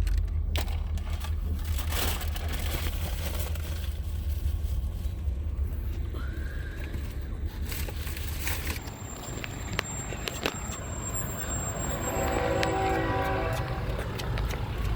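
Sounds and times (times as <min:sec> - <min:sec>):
crackles and clatter: 0:00.0 - 0:11.8
train passing rumble: 0:00.0 - 0:14.9.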